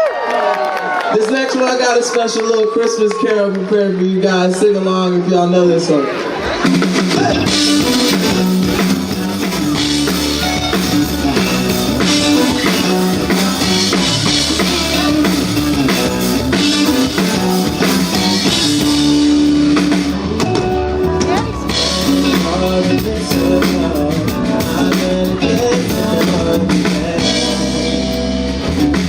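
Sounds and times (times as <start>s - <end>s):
live band playing carol: 6.2s - 29.0s.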